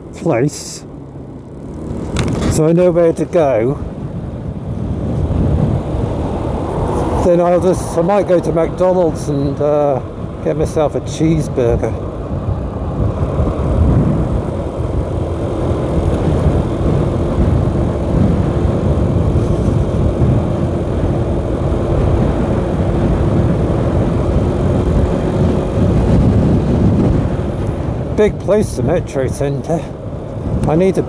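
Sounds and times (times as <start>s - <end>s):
motorcycle engine hum: 0.0s - 31.0s
wind rush: 2.1s - 31.0s.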